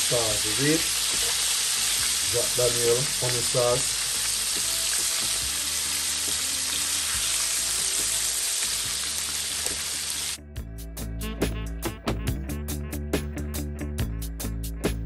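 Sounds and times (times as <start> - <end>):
chicken wings deep-frying: 0.0 - 10.4
music with a beat: 4.2 - 9.0, 10.4 - 15.0.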